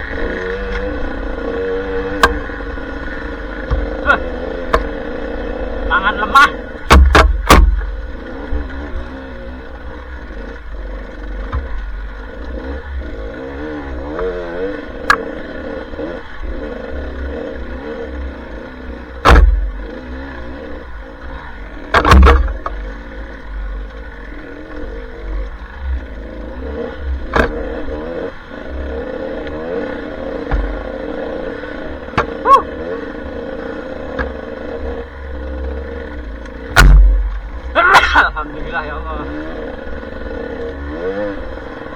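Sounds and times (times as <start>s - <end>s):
dirt bike engine revving: 0.0s - 41.9s
sharp loud knocks: 2.0s - 2.6s, 3.6s - 5.1s, 6.8s - 8.7s, 11.4s - 12.0s, 19.2s - 20.2s, 21.8s - 22.9s, 27.2s - 28.1s, 30.4s - 31.1s, 31.7s - 32.9s, 34.1s - 35.0s, 36.6s - 38.2s.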